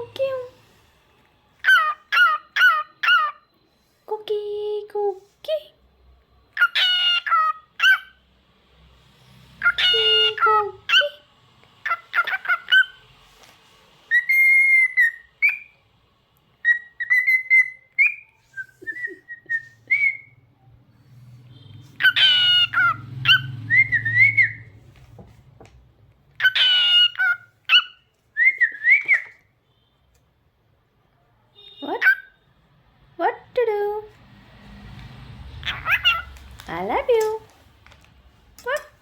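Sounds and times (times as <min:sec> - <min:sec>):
rough cockatiel calls: 0:01.6 - 0:03.4, 0:14.1 - 0:15.7, 0:16.6 - 0:20.3, 0:22.0 - 0:24.7, 0:26.4 - 0:29.4, 0:35.6 - 0:36.3
cockatiel whistling: 0:14.1 - 0:15.8, 0:16.6 - 0:20.5, 0:22.0 - 0:24.8, 0:26.4 - 0:29.4, 0:35.6 - 0:36.3.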